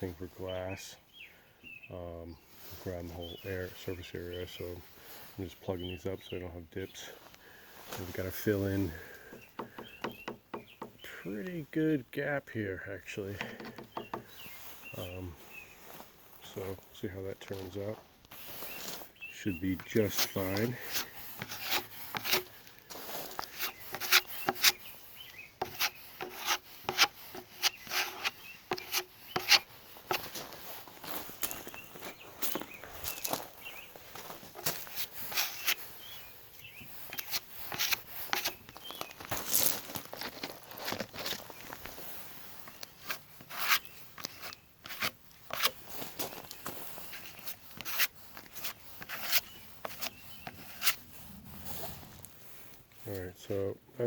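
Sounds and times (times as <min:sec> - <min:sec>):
hand tool scraping and tapping: 0:08.5 - 0:11.1, 0:13.3 - 0:14.6, 0:19.7 - 0:30.6, 0:34.5 - 0:35.8, 0:36.6 - 0:39.4, 0:42.6 - 0:51.0.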